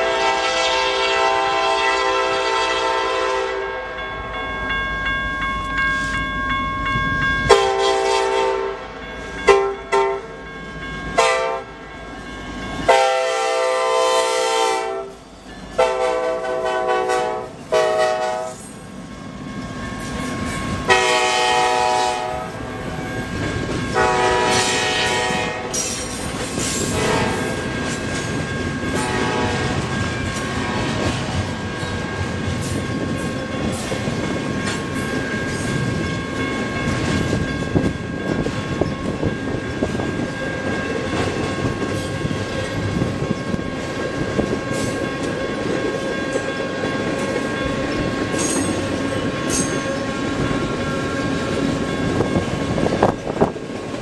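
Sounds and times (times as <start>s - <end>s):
locomotive horn: 0.0s - 4.0s, 7.5s - 8.9s, 9.5s - 10.3s, 11.2s - 11.7s, 12.9s - 15.2s, 15.8s - 18.7s, 20.9s - 22.6s, 23.9s - 25.8s, 26.9s - 27.6s, 28.9s - 29.9s, 30.5s - 31.4s
train wheels clattering on rails: 15.3s - 54.0s.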